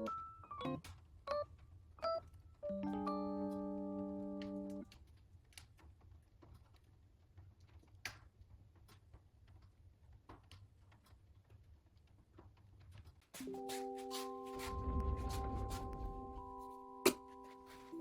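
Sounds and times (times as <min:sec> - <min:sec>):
keyboard chord: 0:02.7 - 0:04.8, 0:13.4 - 0:18.0
fireplace fire crackling: 0:13.4 - 0:18.0.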